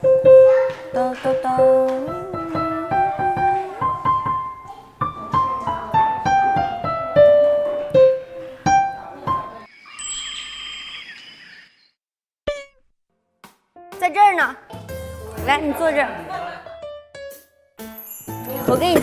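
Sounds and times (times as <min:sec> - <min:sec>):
piano playing simple tune: 0:00.0 - 0:09.7, 0:13.8 - 0:19.0.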